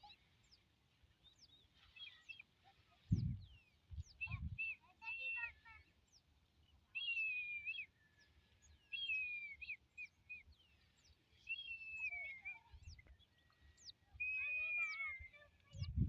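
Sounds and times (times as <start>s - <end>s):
short high bird chirps: 11.4s - 13.0s, 13.8s - 16.0s
falling whistled bird phrase: 11.5s - 13.0s, 14.2s - 15.6s.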